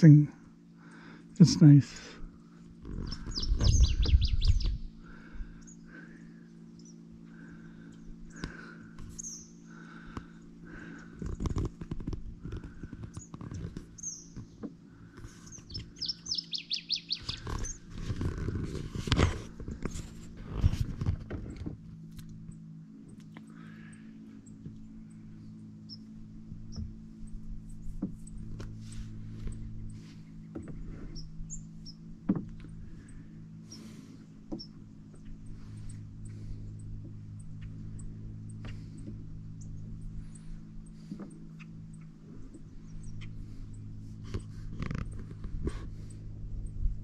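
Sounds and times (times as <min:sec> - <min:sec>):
birds singing: 0:00.0 - 0:20.2, 0:22.3 - 0:47.0
steady low hum: 0:00.0 - 0:47.0
low rumbles and knocks: 0:02.8 - 0:04.9, 0:26.5 - 0:31.4, 0:32.1 - 0:32.9.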